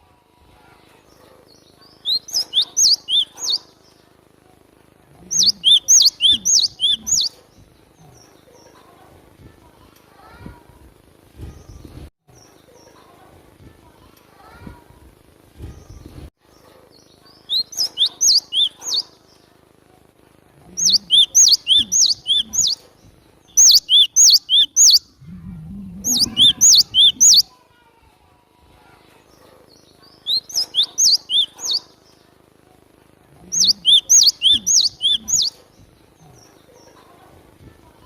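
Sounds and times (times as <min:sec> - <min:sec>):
bird singing sharp high notes: 0:02.0 - 0:03.6, 0:05.3 - 0:07.3, 0:17.5 - 0:19.0, 0:20.8 - 0:22.8, 0:23.6 - 0:25.1, 0:26.0 - 0:27.5, 0:30.3 - 0:31.8, 0:33.6 - 0:35.5.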